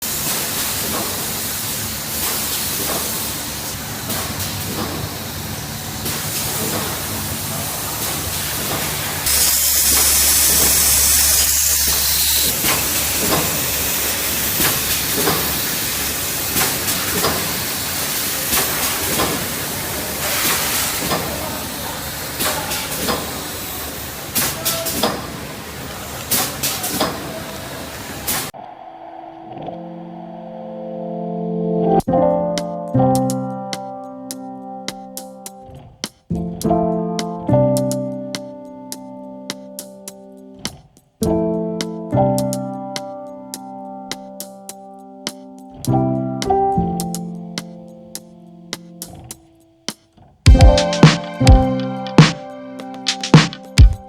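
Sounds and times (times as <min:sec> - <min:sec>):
machine humming and hissing: 0:00.0 - 0:31.8.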